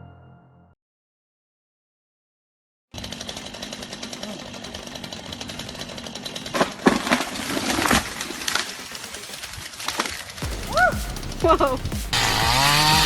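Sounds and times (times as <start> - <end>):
chainsaw buzzing: 2.9 - 8.9, 10.4 - 13.0
loud cracks and crashes: 6.5 - 10.6.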